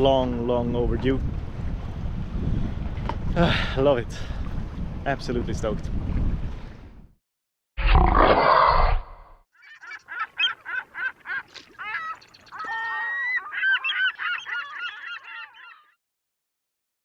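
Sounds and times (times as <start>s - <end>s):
bird honking calls: 9.6s - 16.0s.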